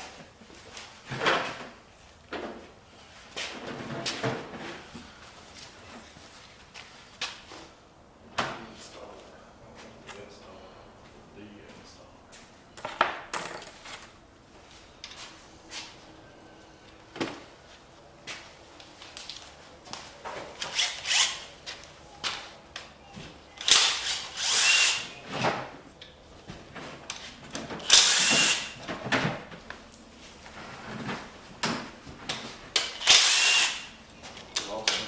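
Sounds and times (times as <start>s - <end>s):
power tool bursts: 23.6s - 25.1s, 27.8s - 28.8s, 32.9s - 33.9s.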